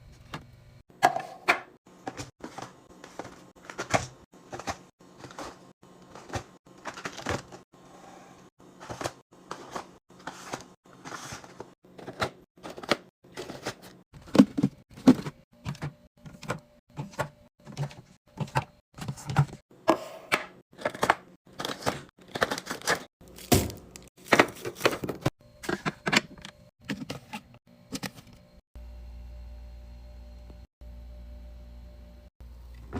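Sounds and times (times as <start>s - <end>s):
plastic containers clicking and knocking: 20.3s - 27.4s.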